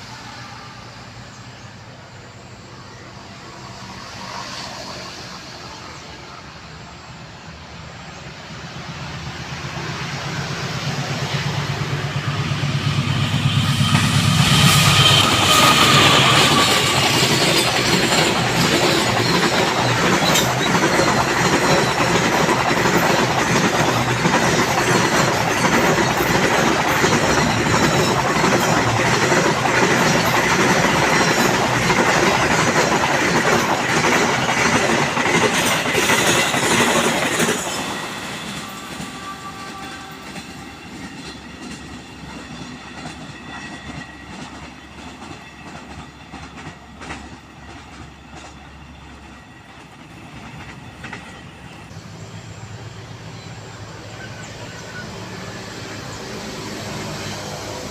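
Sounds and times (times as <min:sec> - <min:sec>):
diesel locomotive passing: 0:00.0 - 0:57.9
train wheels clattering over rails: 0:08.2 - 0:52.6
faint wheel squeal: 0:13.4 - 0:18.2, 0:52.3 - 0:56.4.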